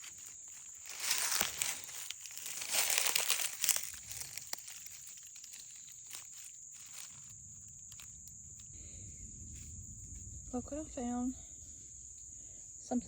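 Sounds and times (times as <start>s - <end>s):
dry leaves crunching underfoot: 0.0s - 8.3s
high insect trill: 0.0s - 13.0s.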